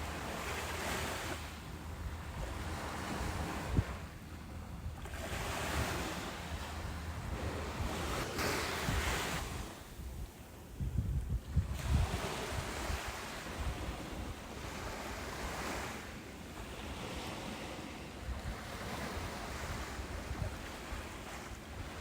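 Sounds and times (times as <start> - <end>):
wind rumbling on microphone: 0.0 - 22.0
ocean surf breaking: 5.2 - 10.0.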